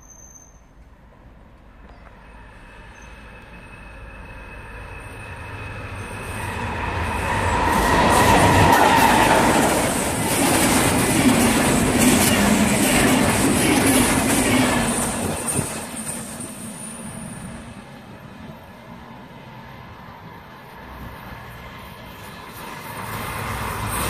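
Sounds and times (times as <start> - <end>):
diesel locomotive passing: 0.8 - 24.0
train wheel clatter: 7.5 - 17.5.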